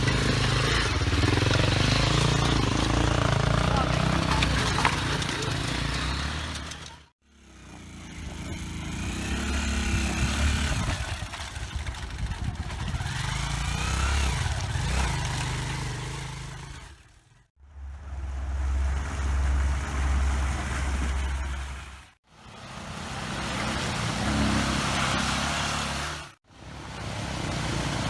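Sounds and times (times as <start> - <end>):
dirt bike engines running: 0.0 - 28.0.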